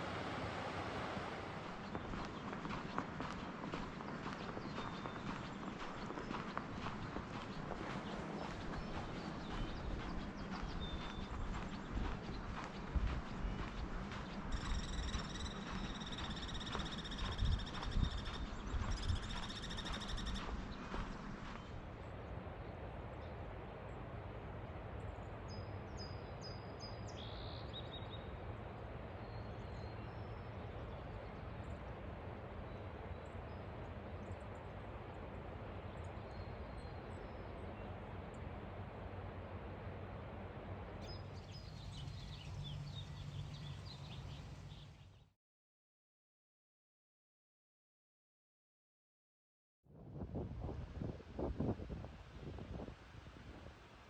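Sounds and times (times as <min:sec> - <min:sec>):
river rushing: 0:00.0 - 0:02.1
footsteps on trail: 0:01.6 - 0:22.0.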